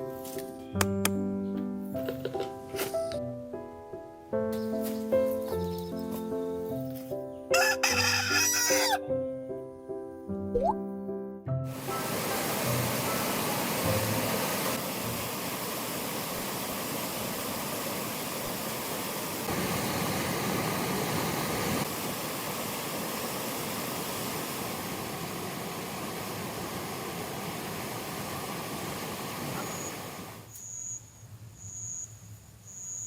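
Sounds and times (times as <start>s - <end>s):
heavy rain hissing: 11.7s - 30.5s.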